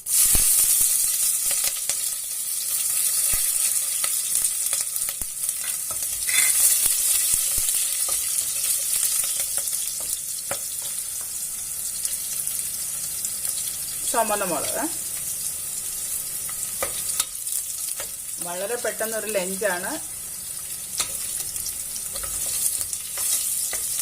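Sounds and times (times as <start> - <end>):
garlic and chillies sizzling in oil: 0.0 - 24.0
spoon clicking on pan: 21.0 - 21.5, 22.1 - 24.0.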